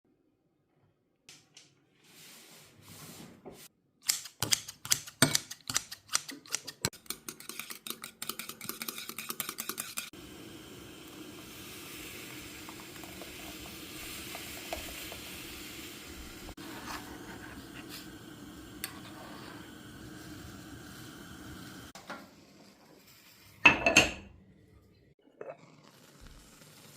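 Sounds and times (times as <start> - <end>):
eggs beaten in a bowl: 4.4 - 10.2
sizzling hiss from pot: 8.8 - 24.2, 25.5 - 26.9.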